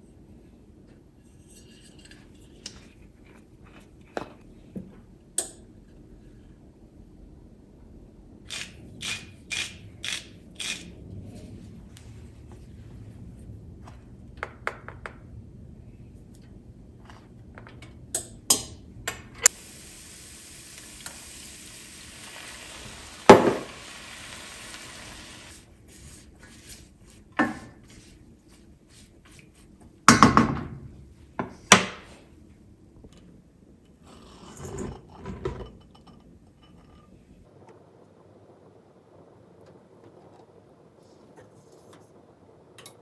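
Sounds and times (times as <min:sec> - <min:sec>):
steady hiss: 0:19.4 - 0:27.2, 0:37.4 - 0:43.0.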